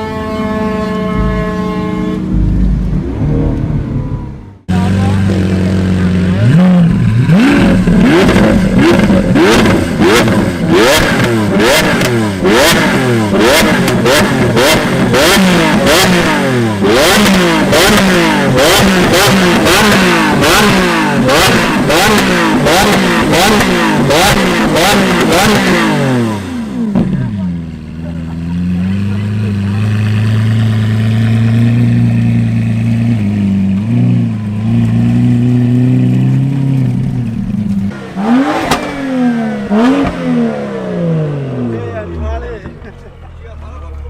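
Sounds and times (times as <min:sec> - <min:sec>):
car engines revving: 0:00.0 - 0:44.0
exhaust cracks: 0:01.0 - 0:44.0.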